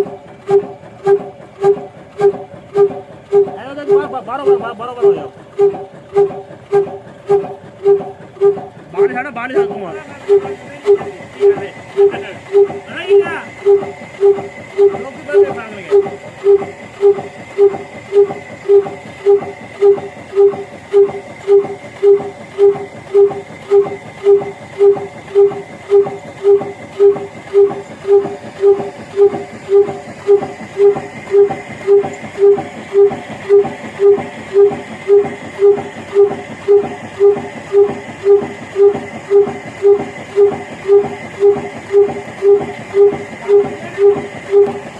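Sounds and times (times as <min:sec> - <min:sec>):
single-cylinder engine running: 0:00.0 - 0:44.9.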